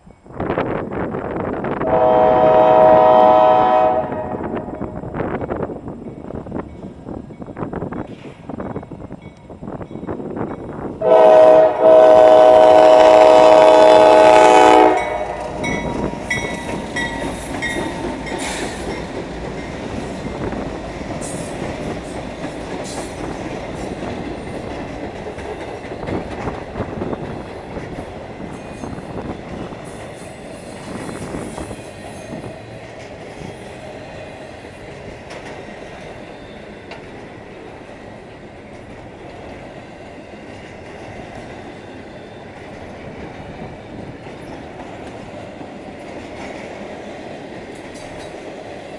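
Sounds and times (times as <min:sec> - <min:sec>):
train horn: 0:01.8 - 0:04.9, 0:11.0 - 0:16.0
train wheels clattering over rail joints: 0:15.3 - 0:48.9.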